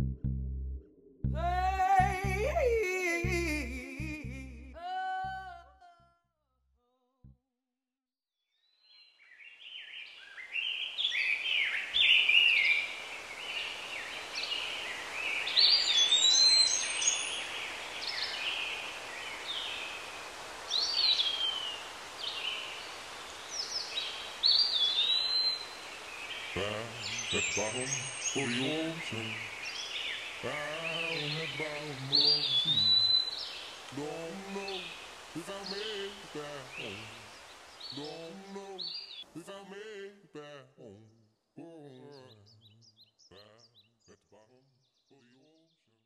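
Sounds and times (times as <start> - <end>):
birds chirping: 8.9 - 39.3
steady outdoor hiss: 9.4 - 39.5.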